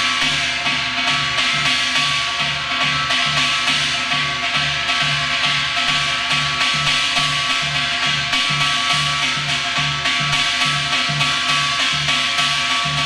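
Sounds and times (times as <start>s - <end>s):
hourglass drum rhythm: 0.0s - 13.0s
steady low drum beat: 11.0s - 13.0s.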